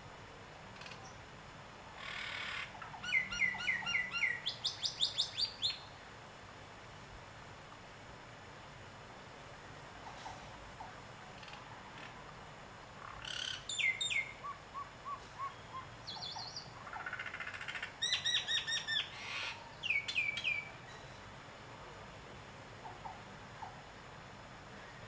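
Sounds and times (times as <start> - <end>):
faint steady hiss: 0.0 - 25.0
birds calling and singing: 2.0 - 5.9, 13.0 - 21.2.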